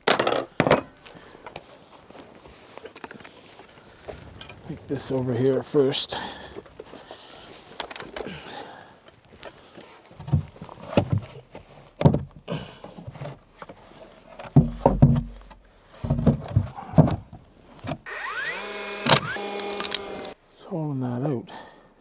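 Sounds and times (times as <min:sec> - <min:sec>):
wooden lumber knocks and thumps: 0:10.2 - 0:18.0.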